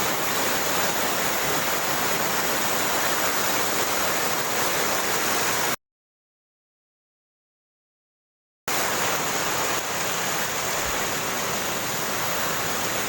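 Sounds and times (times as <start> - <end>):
waterfall rushing: 0.0 - 5.8, 8.7 - 13.0.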